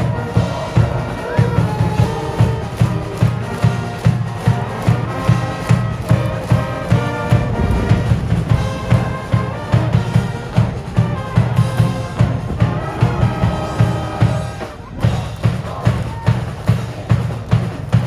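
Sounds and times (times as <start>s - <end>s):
bass drum beat: 0.0s - 14.4s
brass band playing: 0.0s - 15.6s.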